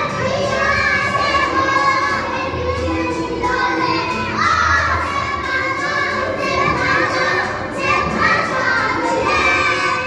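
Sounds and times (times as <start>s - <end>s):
young children talking and calling: 0.0s - 10.0s.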